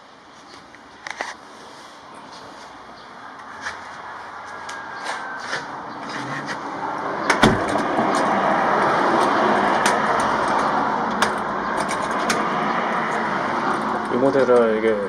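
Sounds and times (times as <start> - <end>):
door thumping shut: 7.3 - 7.9.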